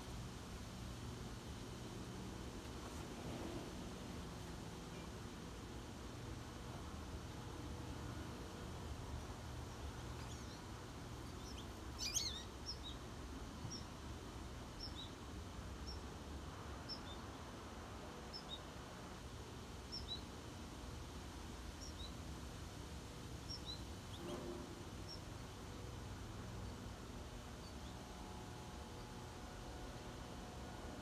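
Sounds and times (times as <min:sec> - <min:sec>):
songbird chirping: 0:09.7 - 0:14.0, 0:14.7 - 0:16.1, 0:16.8 - 0:17.4, 0:21.7 - 0:22.2, 0:23.4 - 0:24.4.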